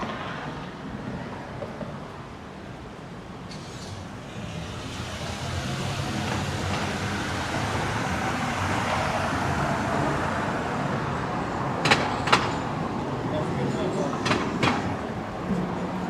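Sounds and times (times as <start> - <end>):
city street traffic: 0.0 - 16.0
vehicle engine and tyres: 3.4 - 16.0.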